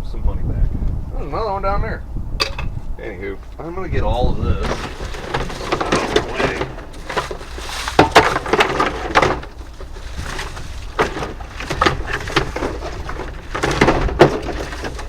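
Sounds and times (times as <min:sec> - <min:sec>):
debris knocking and clattering: 0:04.5 - 0:15.0.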